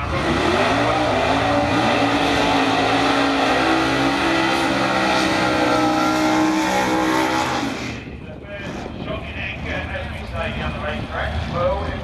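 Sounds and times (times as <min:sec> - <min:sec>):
race car engine revving high: 0:00.0 - 0:08.0.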